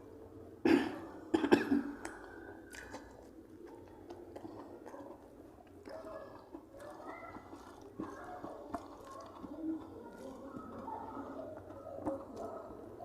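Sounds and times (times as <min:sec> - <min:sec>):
person coughing: 0:00.6 - 0:02.0
person chewing: 0:02.0 - 0:13.0.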